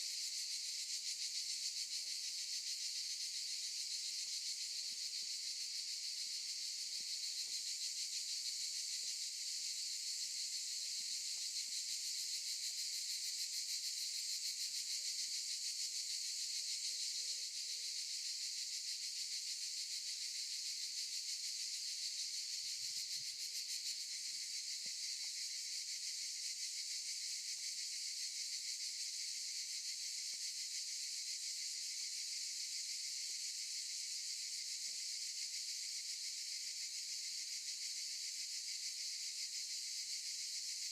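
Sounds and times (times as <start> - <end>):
cicadas buzzing: 18.2 - 40.8.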